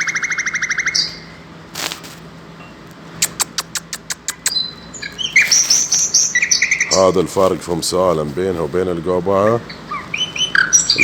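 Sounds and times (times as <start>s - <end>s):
lark buzzy trill: 3.2s - 7.0s
high bird chirps: 3.2s - 7.1s, 9.7s - 11.0s.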